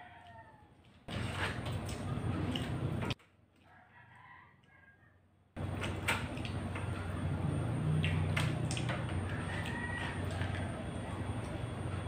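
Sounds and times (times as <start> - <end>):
steady low hum: 5.6 - 12.0
fried chicken crunching: 7.8 - 11.6.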